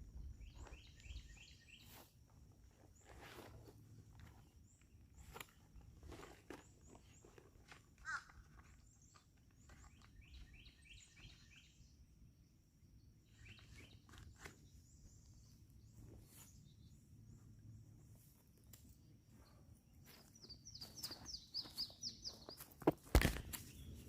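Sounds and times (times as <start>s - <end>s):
bird chirping: 0.1s - 2.0s, 4.2s - 12.1s, 13.0s - 18.0s, 19.2s - 22.8s, 23.6s - 24.0s.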